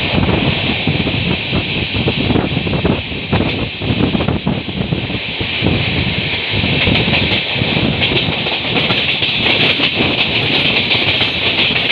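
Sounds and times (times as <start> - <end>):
loud rushing hiss: 0.0 - 11.9
train rolling rumble: 0.0 - 11.9
wheels clattering over rail joints: 6.7 - 11.9.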